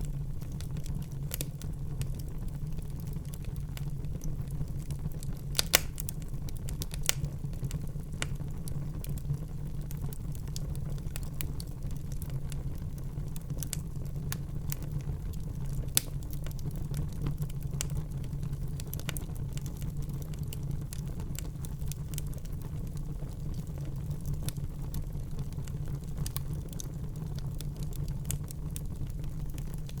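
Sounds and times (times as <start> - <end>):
low rumble of flames: 0.0 - 30.0
logs crackling and snapping: 0.6 - 9.2, 13.3 - 16.7, 25.6 - 30.0
sharp pop from fire: 5.6 - 6.1.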